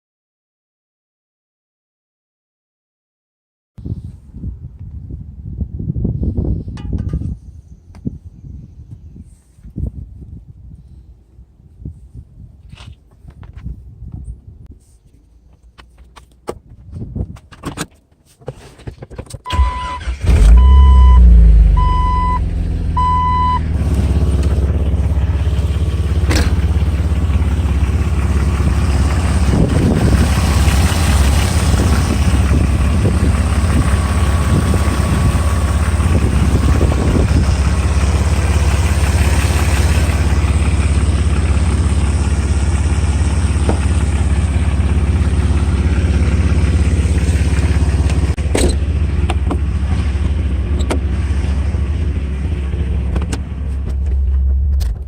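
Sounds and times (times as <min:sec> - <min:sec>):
car engine cranking and idling: 0:19.5 - 0:55.0
electronic chime beeps: 0:20.6 - 0:22.4.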